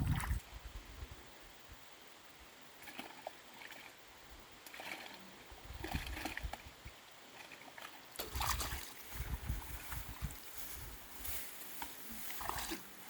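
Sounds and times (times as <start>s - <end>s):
low rumbles on microphone: 0.0s - 1.2s, 8.4s - 11.0s
rustling and crackling of plants: 8.2s - 13.0s.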